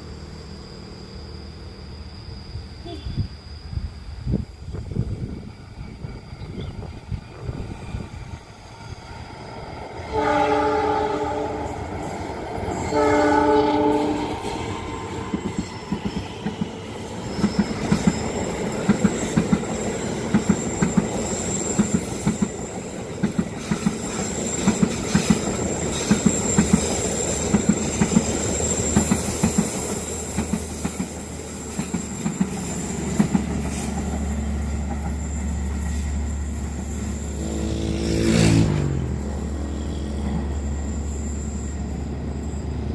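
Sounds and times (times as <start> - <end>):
steady high whine: 0.0 - 38.2
train horn blasts: 10.0 - 12.0, 12.7 - 14.5, 37.2 - 40.6
train wheels clickety-clack: 11.5 - 37.4.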